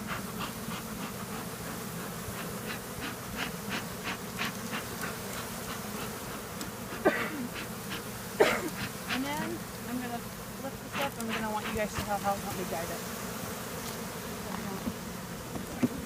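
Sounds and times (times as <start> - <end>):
honeybees buzzing: 0.0 - 16.0
faint ticks and rustles: 0.1 - 10.1, 10.8 - 12.8.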